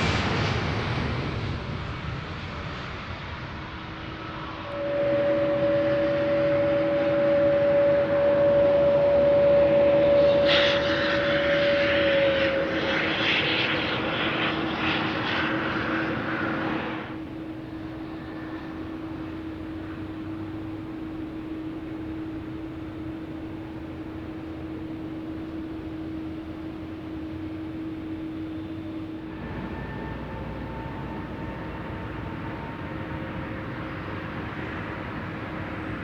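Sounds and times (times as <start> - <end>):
jet engine whine: 0.0 - 36.0
loud rushing roar: 4.4 - 21.1, 29.1 - 36.0.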